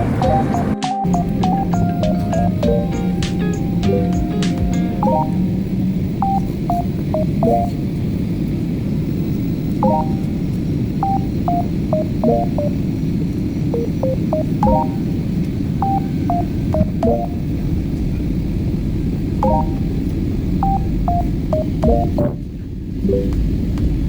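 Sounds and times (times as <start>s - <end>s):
steady low rumble: 0.0s - 24.0s
short electronic beeps: 5.0s - 5.4s, 6.2s - 7.8s, 9.8s - 10.4s, 11.0s - 12.8s, 13.8s - 15.1s, 15.8s - 17.4s, 19.4s - 19.9s, 20.6s - 22.4s.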